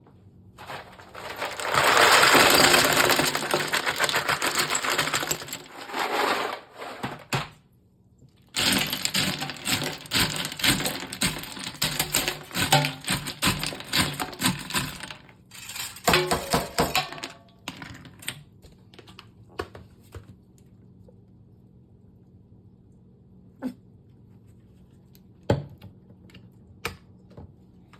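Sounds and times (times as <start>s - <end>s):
garbage disposal grinding: 0.6s - 7.6s, 8.5s - 18.3s.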